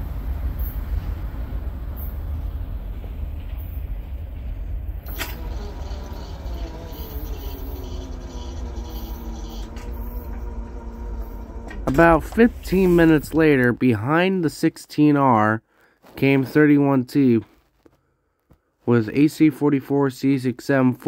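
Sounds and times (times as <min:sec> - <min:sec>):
vehicle noise: 0:00.0 - 0:14.2
freight train rumble: 0:00.0 - 0:15.0
droning hum with tones: 0:04.5 - 0:14.1.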